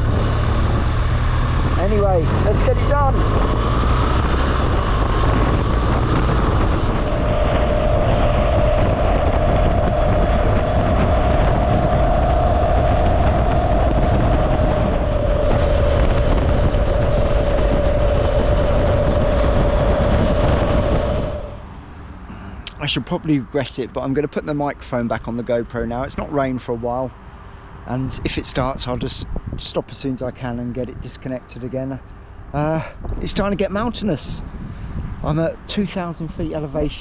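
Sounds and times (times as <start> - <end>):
motorcycle engine drone: 0.0 - 23.6
steady whine: 0.0 - 27.2
road noise: 0.0 - 37.0
wind rush: 0.0 - 37.0.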